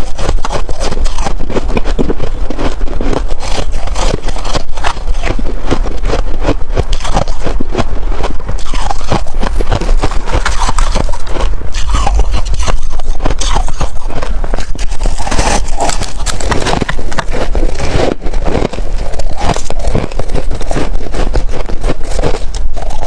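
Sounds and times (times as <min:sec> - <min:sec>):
frost being bitten and chewed: 0:00.0 - 0:23.0.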